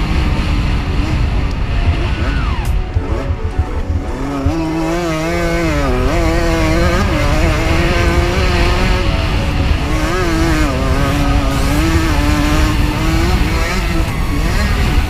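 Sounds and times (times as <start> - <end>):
lower-pitched engine: 0.0 - 15.0
motocross bike engines revving: 0.0 - 15.0
wind rumble on microphone: 0.0 - 15.0.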